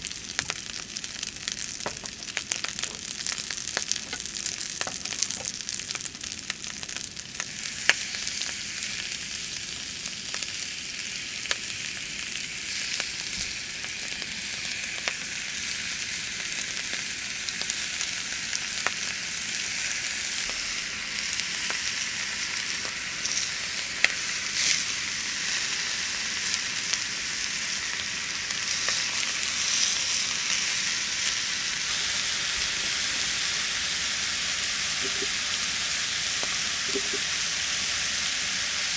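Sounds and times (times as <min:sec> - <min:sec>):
food sizzling in a pan: 0:00.0 - 0:38.9
small pops and crackles: 0:00.2 - 0:08.7.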